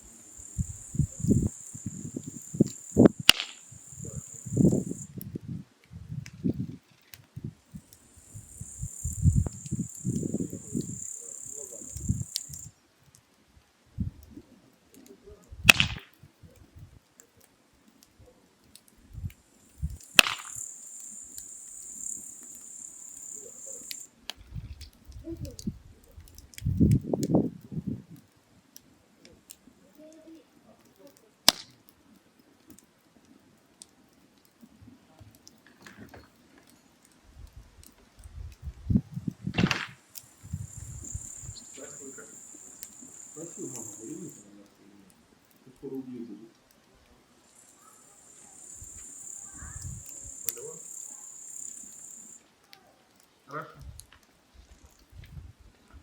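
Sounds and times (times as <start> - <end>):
insects chirring: 0.0 - 5.2, 6.9 - 12.8, 19.2 - 24.7, 38.9 - 44.9, 47.3 - 52.5
firewood crackling: 0.0 - 56.0
sharp pops: 0.1 - 5.1, 7.0 - 12.7, 15.6 - 16.2, 18.8 - 24.9, 31.4 - 31.8, 39.4 - 44.4.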